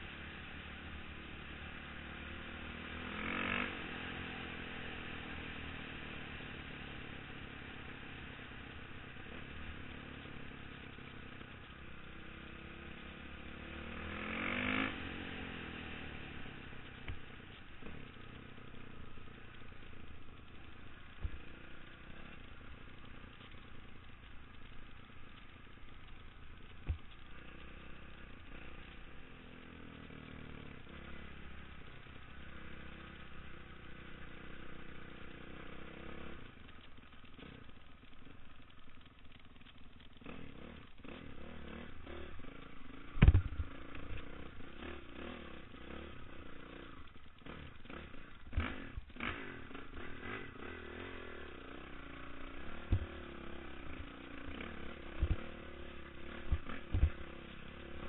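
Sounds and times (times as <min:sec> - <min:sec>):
dirt bike engine revving: 0:01.7 - 0:23.8, 0:40.1 - 0:58.0
sharp knocks: 0:43.2 - 0:43.5.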